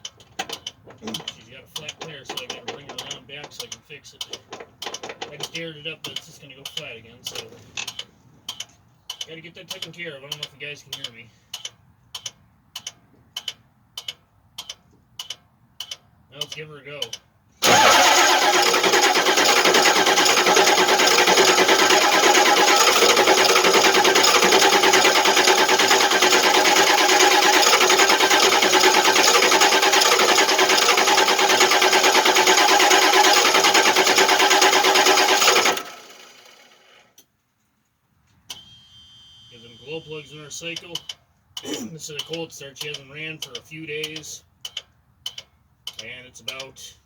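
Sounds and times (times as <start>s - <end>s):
starter cranking diesel engine: 0.0s - 8.0s, 17.6s - 37.2s.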